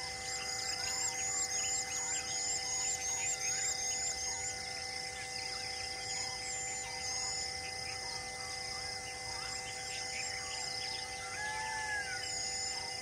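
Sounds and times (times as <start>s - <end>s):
steady droning tones: 0.0s - 13.0s
wild birds chirping and whistling: 0.0s - 13.0s
long falling bird call: 9.3s - 12.9s.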